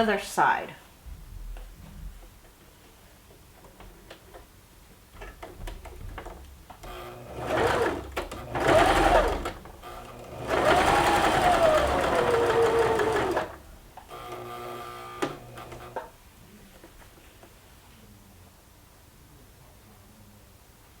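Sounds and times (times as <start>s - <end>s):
sewing machine stitching: 6.8s - 16.0s.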